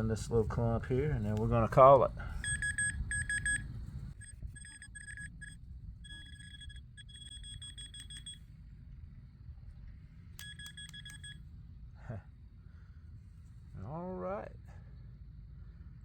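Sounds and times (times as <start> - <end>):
metal detector rapid beeps: 2.2 - 8.5, 10.4 - 11.4.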